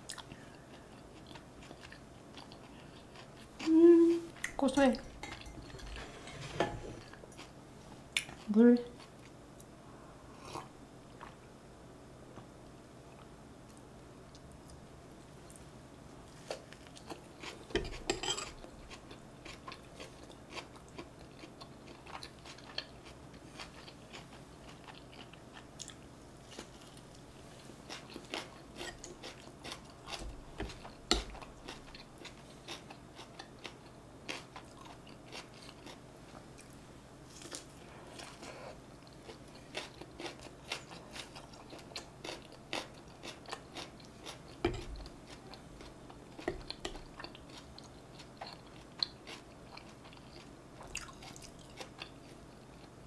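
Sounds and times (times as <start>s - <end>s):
person chewing with wet clicks: 0.0s - 3.7s, 16.5s - 26.1s, 27.9s - 36.8s, 38.2s - 53.0s.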